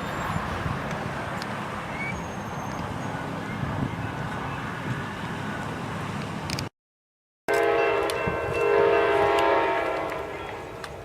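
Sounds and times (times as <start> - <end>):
locomotive air horn blast: 7.5 - 10.5.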